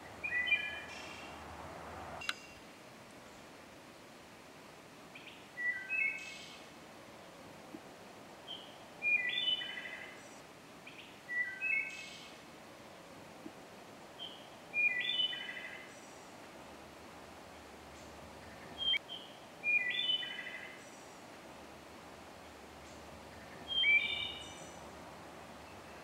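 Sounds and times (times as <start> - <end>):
steady outdoor hiss: 0.0 - 26.0
songbird whistling: 0.2 - 1.4, 5.2 - 6.5, 8.5 - 10.1, 10.9 - 12.2, 14.2 - 16.0, 18.6 - 21.0, 23.4 - 24.8.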